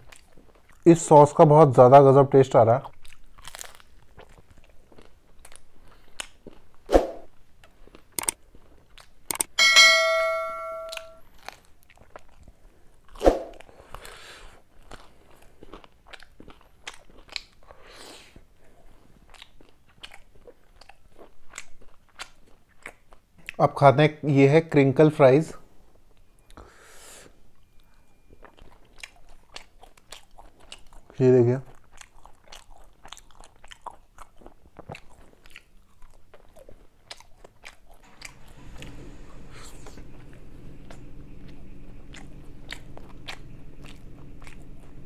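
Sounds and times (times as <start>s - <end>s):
crunchy bite: 3.0s - 7.3s
mouth clicks while chewing: 7.6s - 9.6s, 14.8s - 18.2s, 19.2s - 23.6s, 27.8s - 38.4s.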